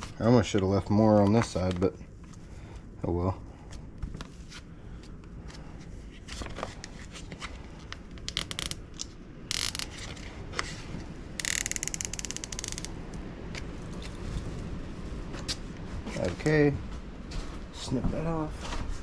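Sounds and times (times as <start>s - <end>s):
zip tie ratcheting clicks: 8.2s - 10.0s, 11.4s - 13.0s.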